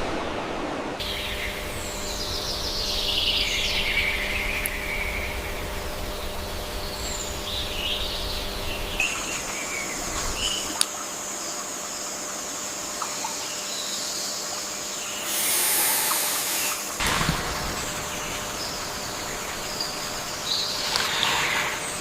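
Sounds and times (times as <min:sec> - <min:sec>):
steady high hiss: 0:00.0 - 0:22.0
birds chirping: 0:01.0 - 0:22.0
loud rushing hiss: 0:15.2 - 0:22.0.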